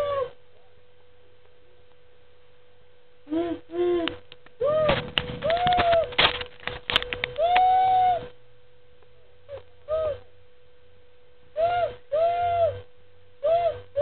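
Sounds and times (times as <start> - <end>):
child hooting like a train whistle: 0.0 - 0.4, 3.3 - 6.1, 7.4 - 8.3, 9.5 - 10.3, 11.6 - 14.0
faint steady hum: 0.0 - 14.0.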